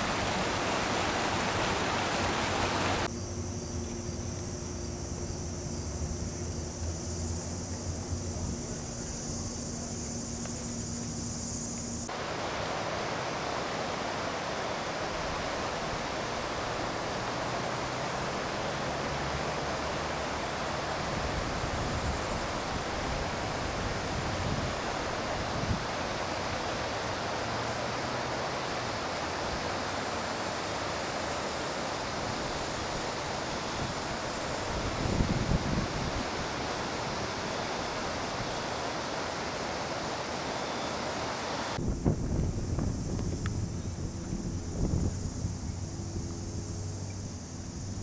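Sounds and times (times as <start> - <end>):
creek water rushing: 0.0 - 3.1, 7.3 - 42.4
insects chirping: 0.0 - 48.0.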